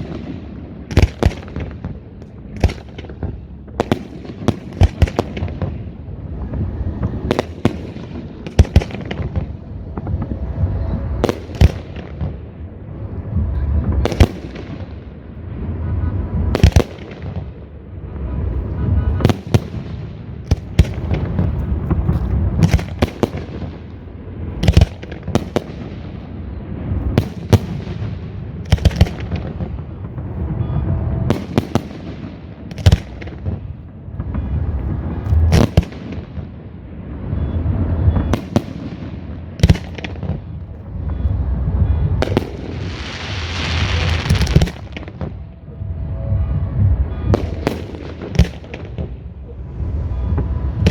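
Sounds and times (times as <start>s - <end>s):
low rumble: 0.0s - 16.6s, 39.5s - 50.9s.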